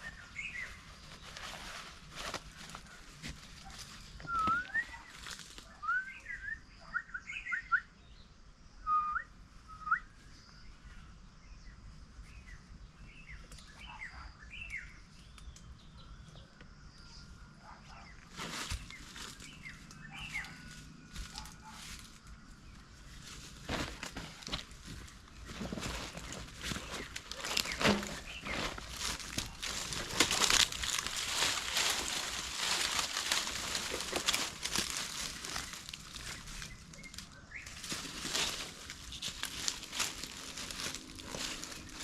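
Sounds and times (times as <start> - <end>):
rustling: 0.0 - 5.6, 18.3 - 22.3, 22.9 - 42.0
birds singing: 0.0 - 42.0.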